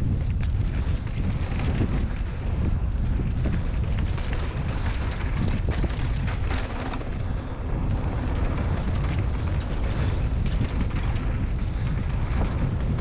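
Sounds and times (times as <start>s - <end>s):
bicycle rattling on rough trail: 0.0s - 13.0s
wind buffeting microphone: 0.0s - 13.0s.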